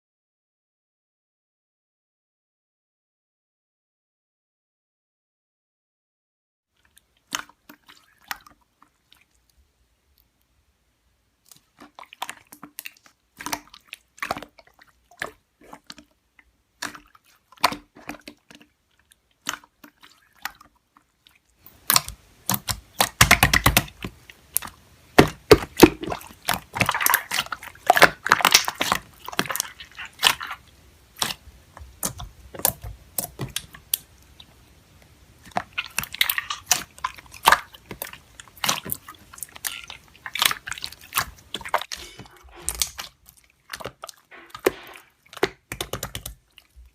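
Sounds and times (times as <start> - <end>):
slime squishing and popping: 21.7 - 34.1, 35.4 - 42.0.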